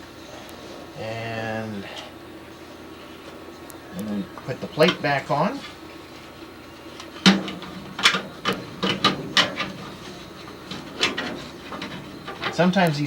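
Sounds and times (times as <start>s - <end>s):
metal plate clanking: 7.2s - 12.7s.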